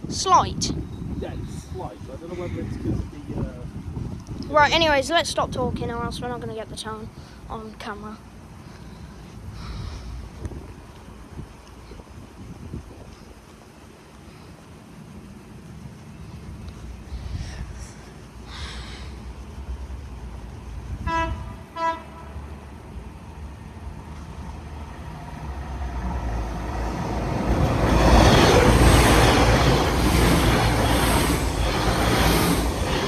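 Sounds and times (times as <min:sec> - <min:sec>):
train passing rumble: 0:00.0 - 0:33.0
train horn blasts: 0:21.0 - 0:22.7.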